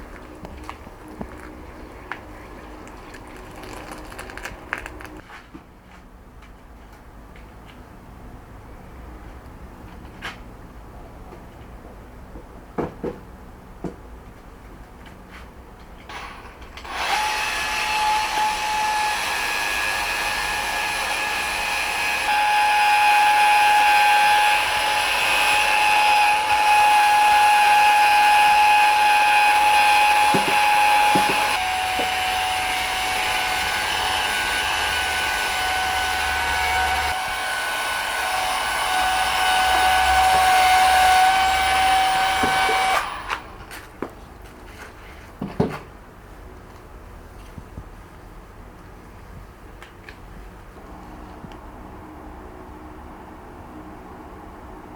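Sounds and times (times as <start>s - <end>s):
electric power tool whining: 16.1s - 43.6s.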